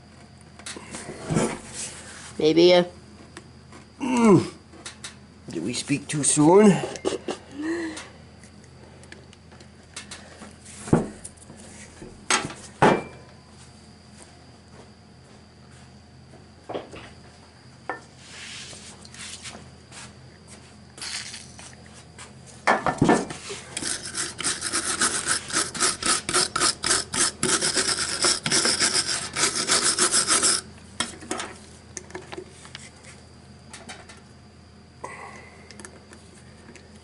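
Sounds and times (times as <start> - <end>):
hand tool scraping metal: 23.7 - 30.7.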